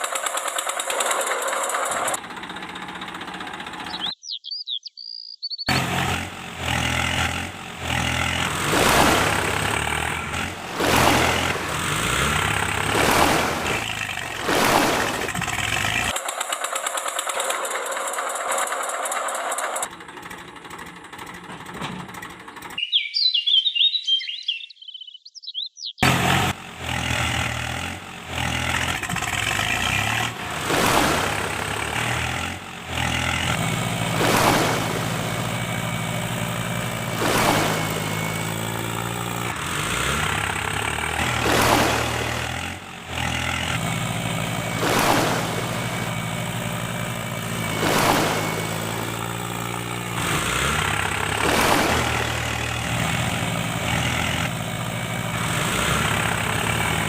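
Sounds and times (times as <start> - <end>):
tractor engine running: 0.0 - 4.4, 5.7 - 22.9, 26.0 - 57.0.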